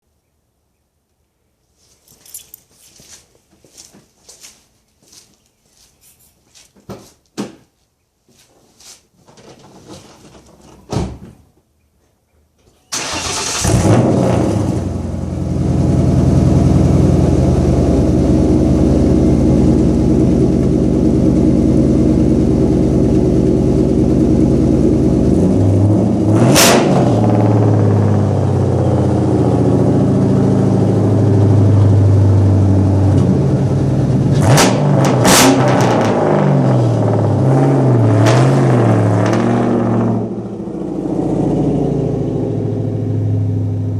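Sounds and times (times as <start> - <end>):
car engine starting and idling: 12.9 - 43.9.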